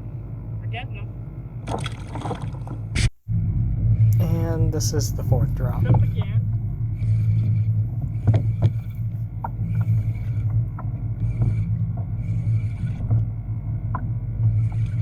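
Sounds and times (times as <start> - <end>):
wind rumble: 0.0 - 15.0
water splashing against hull: 1.6 - 3.1.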